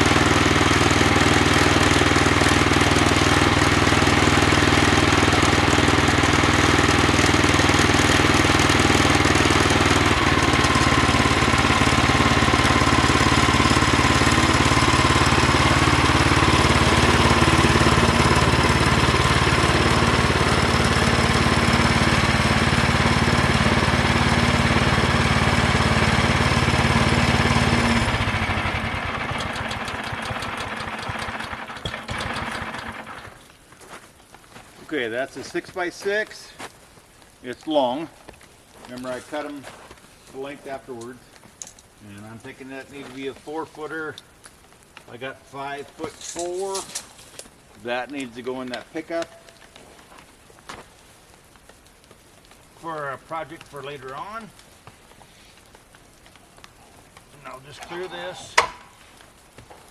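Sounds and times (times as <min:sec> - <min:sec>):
sawmill engine sawing timber: 0:00.0 - 0:33.4, 0:57.4 - 0:58.8.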